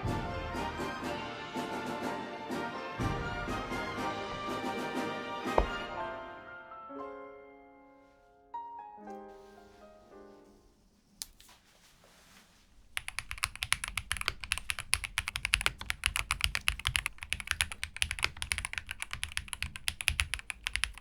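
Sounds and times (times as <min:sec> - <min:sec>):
rapid typing on mechanical keyboard: 0:13.0 - 0:21.0.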